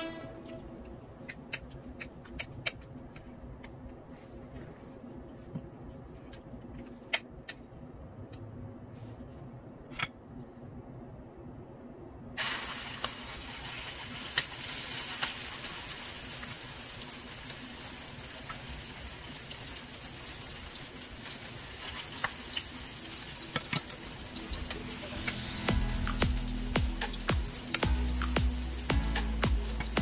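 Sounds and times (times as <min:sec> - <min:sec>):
eggplant sizzling in hot oil: 0:12.4 - 0:30.0
oil popping and crackling: 0:12.4 - 0:30.0.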